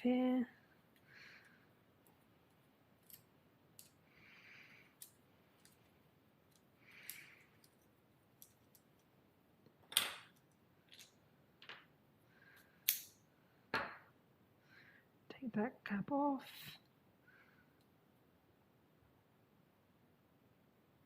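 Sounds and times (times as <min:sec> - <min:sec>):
small plastic parts clicking: 0:03.0 - 0:04.0, 0:05.0 - 0:09.1, 0:09.8 - 0:11.8.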